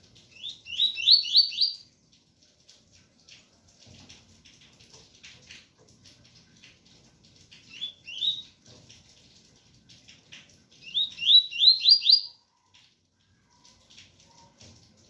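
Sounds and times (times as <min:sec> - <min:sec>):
faint rain patter: 0:00.0 - 0:15.0
bird singing whistled notes: 0:00.4 - 0:01.8, 0:07.7 - 0:08.4, 0:10.8 - 0:12.4.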